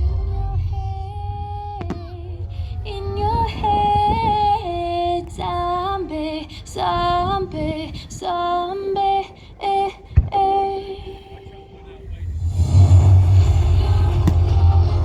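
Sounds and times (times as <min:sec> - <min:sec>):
low rumble: 0:00.0 - 0:06.0, 0:12.1 - 0:15.0.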